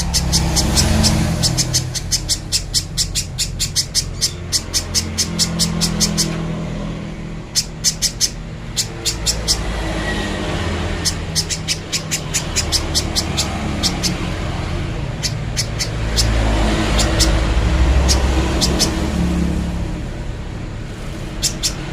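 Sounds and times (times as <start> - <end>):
bird calling in sharp chips: 0.0 - 6.6, 7.4 - 14.4, 21.3 - 21.9
low engine-like hum: 0.0 - 21.9.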